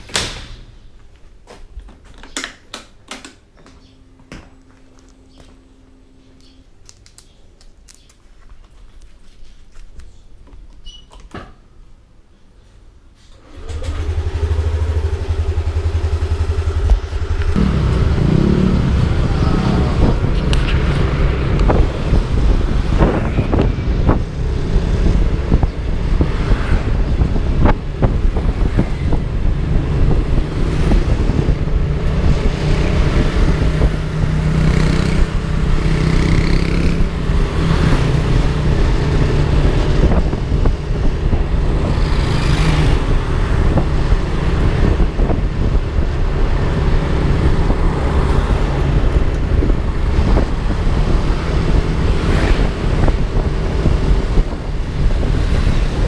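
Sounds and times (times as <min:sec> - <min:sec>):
scooter engine running: 0:13.4 - 0:19.2
wind rushing over microphone: 0:16.2 - 0:56.0.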